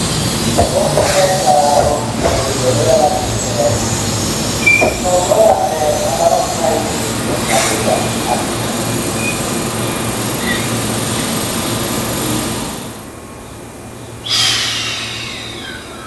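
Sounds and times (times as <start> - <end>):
loud burst of hiss: 0.0 - 9.6, 14.2 - 15.8
electric train rumble: 0.0 - 16.0.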